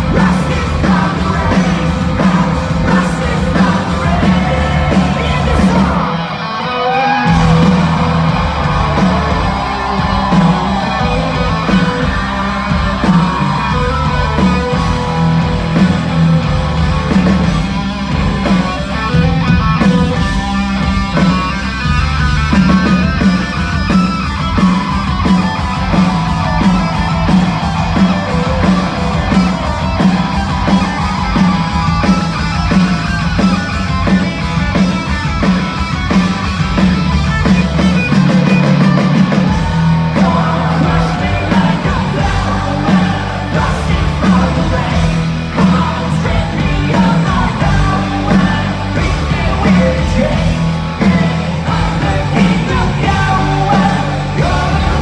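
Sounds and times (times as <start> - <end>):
person shouting singing: 0.0 - 15.5, 24.5 - 34.4, 39.1 - 55.0
bass: 0.0 - 55.0
distorted electric guitars: 0.0 - 55.0
steady drums: 0.0 - 55.0.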